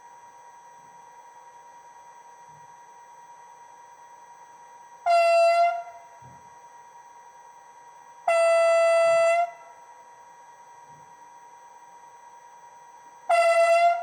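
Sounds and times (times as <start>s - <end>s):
model train horn blasts: 5.0s - 6.2s, 8.2s - 9.9s, 13.2s - 14.0s.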